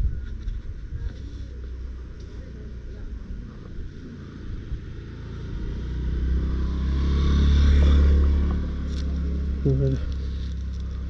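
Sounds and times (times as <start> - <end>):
vehicle engine passing by: 2.8 - 11.0.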